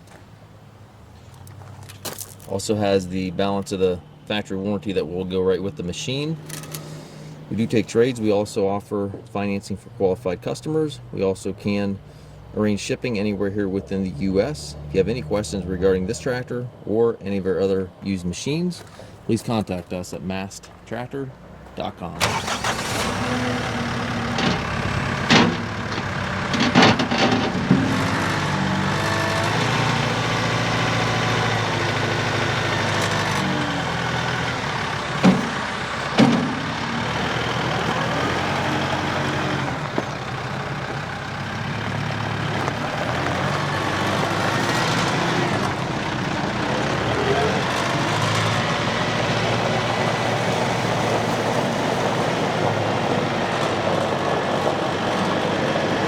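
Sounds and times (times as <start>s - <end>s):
tractor diesel engine running: 0.0s - 8.6s, 22.2s - 56.0s.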